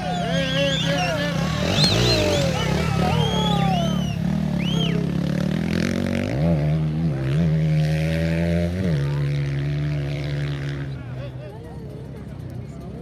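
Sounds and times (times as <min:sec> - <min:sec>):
racing engine running hard: 0:00.0 - 0:05.9.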